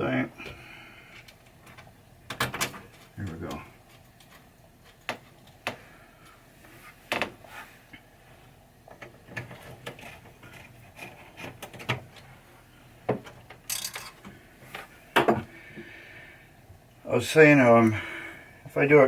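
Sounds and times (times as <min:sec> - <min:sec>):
metal parts and tools clicking: 0:13.7 - 0:14.2.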